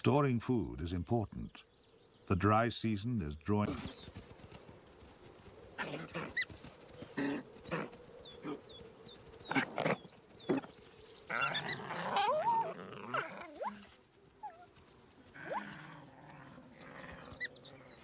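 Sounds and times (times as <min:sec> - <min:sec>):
jackals growling and squealing: 0:05.6 - 0:18.0
jackals whining and yelping: 0:05.6 - 0:18.0.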